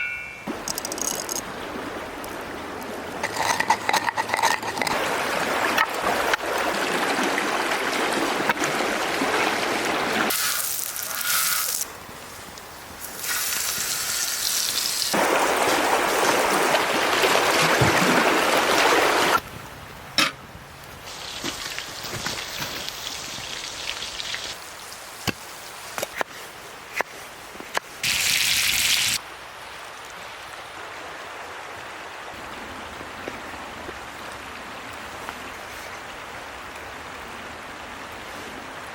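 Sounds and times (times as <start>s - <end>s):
steak sizzling over fire: 10.3s - 15.2s, 28.0s - 29.2s.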